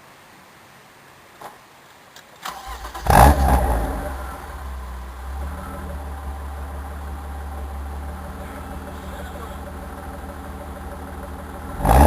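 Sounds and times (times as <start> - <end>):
car engine starting and idling: 2.4 - 12.0.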